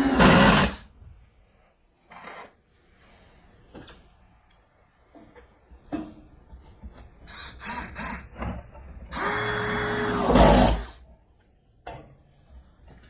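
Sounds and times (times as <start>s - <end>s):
scraping strokes on wood: 0.0s - 0.8s
small power tool motor running: 0.0s - 0.8s, 9.1s - 11.0s.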